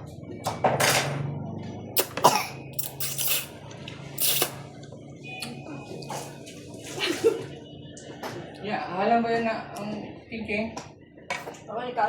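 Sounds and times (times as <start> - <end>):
person slurping noodles: 2.8 - 3.5, 4.2 - 4.6.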